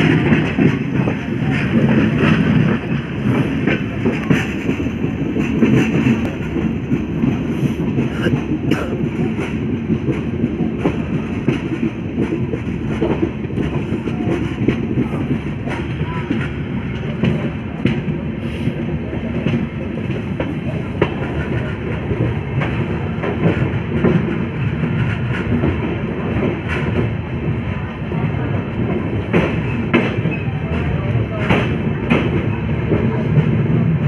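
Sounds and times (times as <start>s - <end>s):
clicks and clatter over track: 0.0s - 18.3s
train wheels rumbling on rails: 0.0s - 34.0s.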